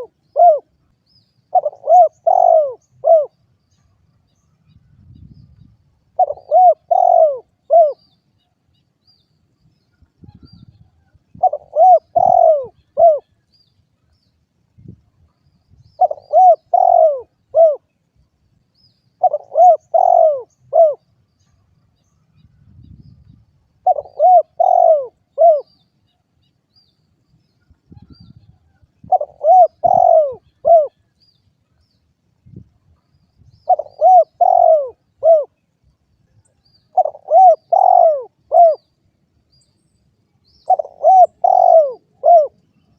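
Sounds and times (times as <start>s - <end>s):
dove cooing: 0.0s - 0.7s, 1.5s - 3.4s, 6.1s - 8.1s, 11.3s - 13.4s, 16.0s - 17.9s, 19.2s - 21.0s, 23.8s - 25.8s, 29.0s - 31.0s, 33.6s - 35.6s, 36.9s - 38.9s, 40.6s - 42.6s.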